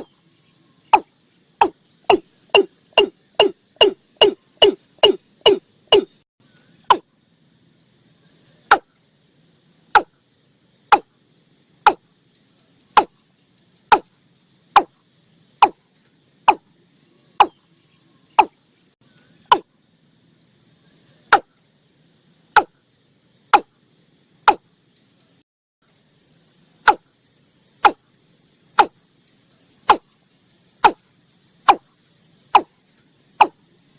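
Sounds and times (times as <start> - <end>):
insects chirring: 0.0 - 33.9
bird calling sharp notes: 0.9 - 6.2.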